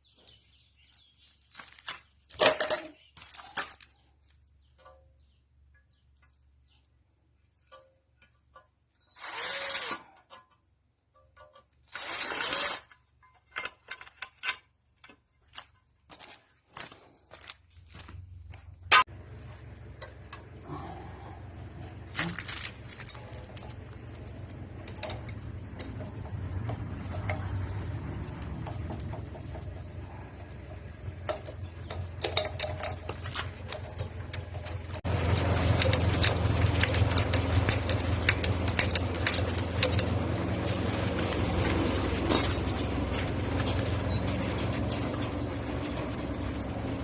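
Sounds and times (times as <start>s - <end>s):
ratchet spanner rasping: 9.0s - 10.6s, 31.8s - 40.1s
steady low hum: 18.2s - 47.0s
metal clicks and clinks: 22.5s - 27.6s, 30.4s - 40.2s, 42.2s - 43.8s.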